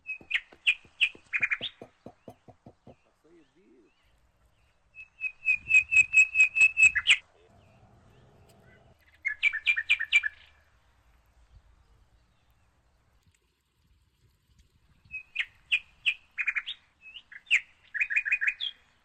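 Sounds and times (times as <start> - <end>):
songbird whistling notes: 5.0 - 7.7.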